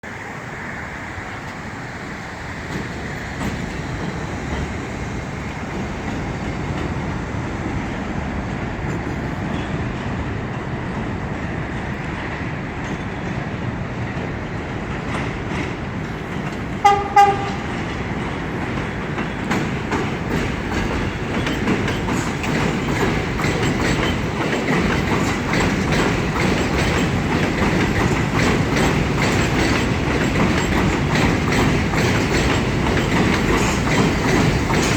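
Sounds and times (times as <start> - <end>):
train rumbling past: 0.0 - 34.9
wheels clacking over rail joints: 0.1 - 34.9
train horn blasts: 16.8 - 17.9.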